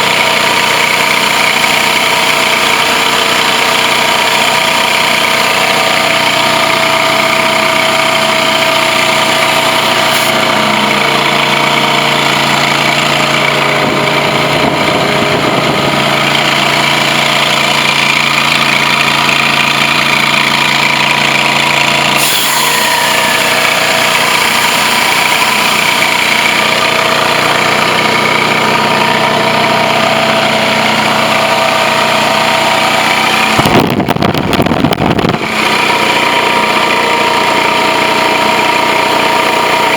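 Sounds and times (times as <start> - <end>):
carpet extractor machine drone: 0.0 - 39.9
brief noisy burst: 22.2 - 26.1.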